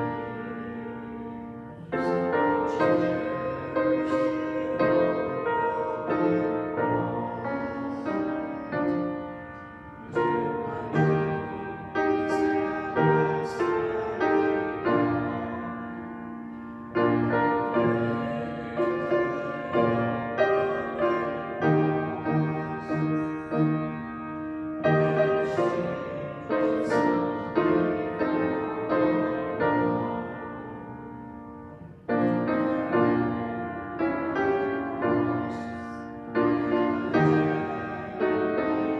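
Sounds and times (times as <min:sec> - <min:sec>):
slow solo piano chords: 0:00.0 - 0:38.9.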